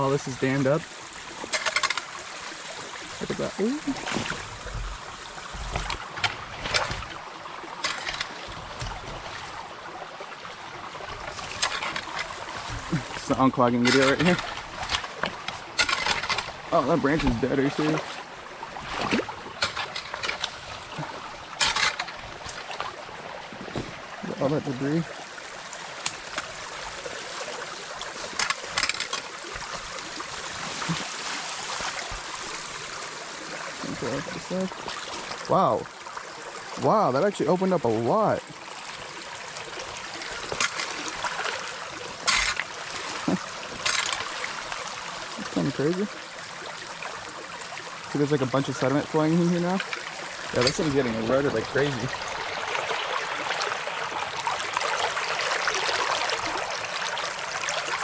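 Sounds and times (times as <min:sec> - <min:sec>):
creek water running: 0:00.0 - 0:58.0
short sharp splashes: 0:11.1 - 0:23.0.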